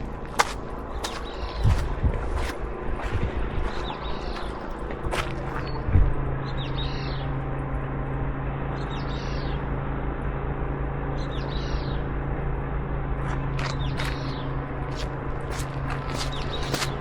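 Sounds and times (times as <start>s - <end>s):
steady low hum: 0.0s - 17.0s
bird chirping: 6.4s - 7.3s, 8.8s - 9.6s, 11.2s - 12.1s.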